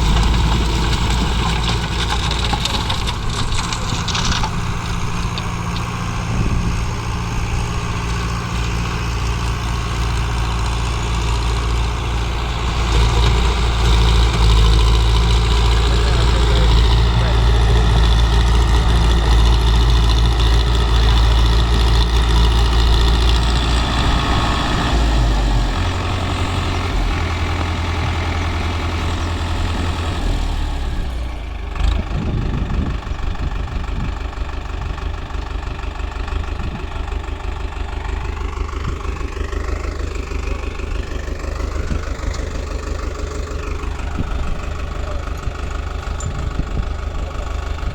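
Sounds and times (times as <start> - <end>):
tractor engine idling: 0.0 - 47.9.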